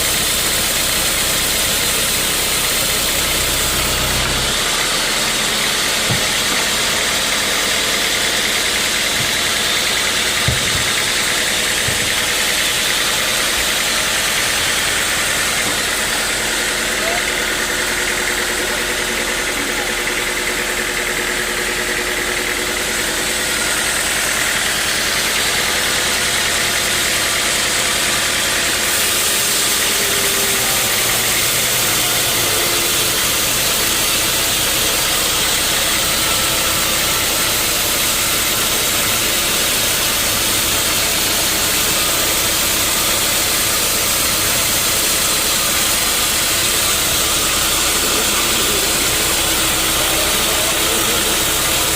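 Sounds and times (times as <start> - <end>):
sawmill saw and engine running: 0.0 - 51.9.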